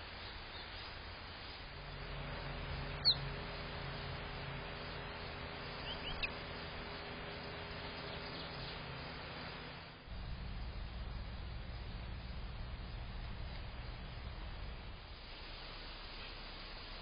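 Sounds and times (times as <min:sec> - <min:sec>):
steady low hum: 0:00.0 - 0:17.0
bird chirps: 0:02.8 - 0:03.6, 0:05.6 - 0:09.1.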